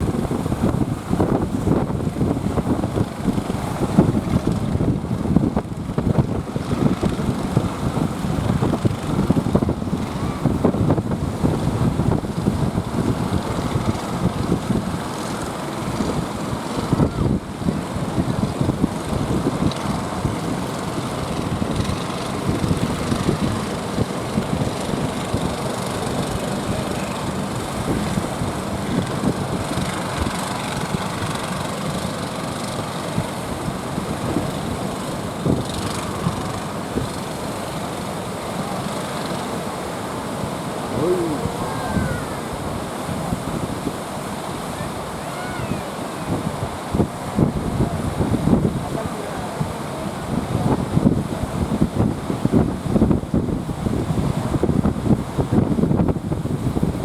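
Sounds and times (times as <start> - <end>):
boat engine running: 0.0 - 45.3
rushing water: 0.0 - 57.0
wind noise: 0.0 - 57.0.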